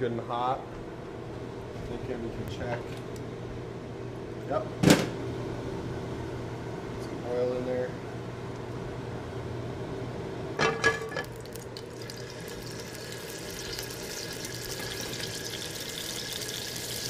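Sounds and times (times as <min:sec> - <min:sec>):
scallops sizzling in oil: 0:11.2 - 0:17.0.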